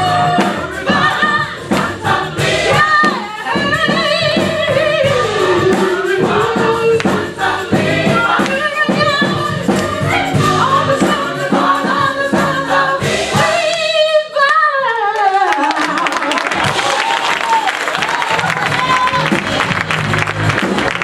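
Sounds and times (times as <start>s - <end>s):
gospel choir singing over beat: 0.0s - 15.5s, 16.5s - 21.0s
applause: 15.2s - 21.0s.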